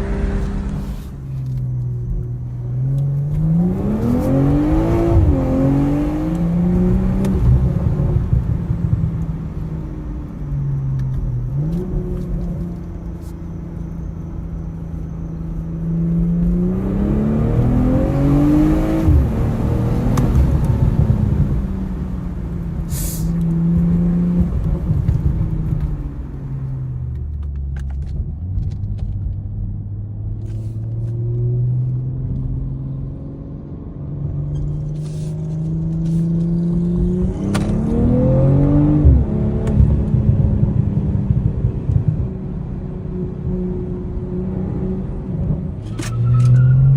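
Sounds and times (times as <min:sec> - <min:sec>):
car engine revving under load: 0:00.0 - 0:10.1, 0:30.1 - 0:46.9.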